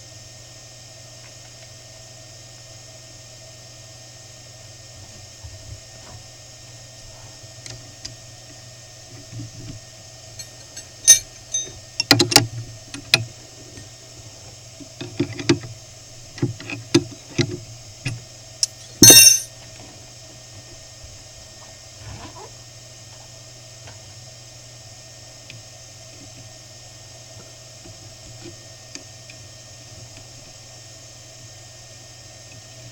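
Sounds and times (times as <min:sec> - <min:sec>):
mill spindle whine and hum: 0:00.0 - 0:32.9
sharp clicks and knocks: 0:10.4 - 0:13.2.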